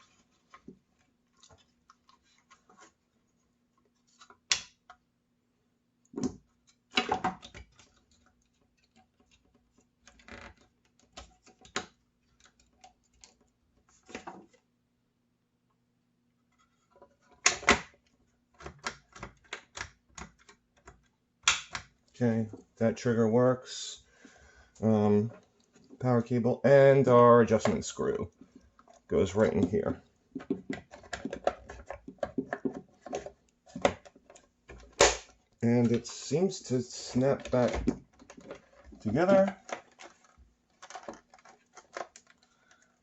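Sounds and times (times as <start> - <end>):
plastic parts clicking: 28.4 - 36.2, 37.2 - 43.0.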